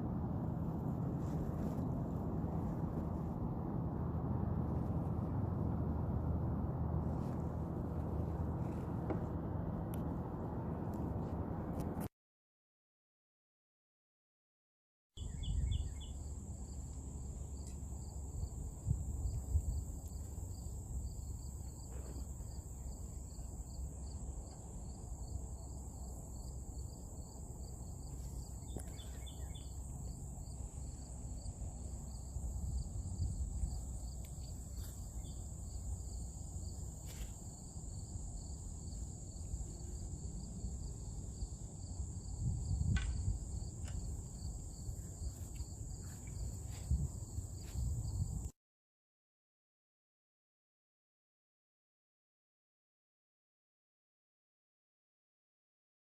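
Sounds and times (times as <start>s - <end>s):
low rumble: 0.0s - 12.1s
pulsing insect chirp: 15.2s - 48.4s.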